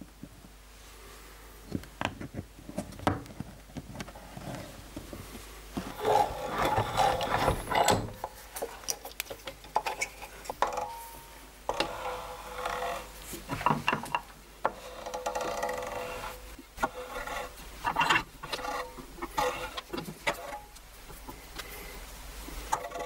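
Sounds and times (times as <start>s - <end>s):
bench vise cranking: 5.9s - 8.4s, 11.7s - 20.7s, 22.7s - 23.0s.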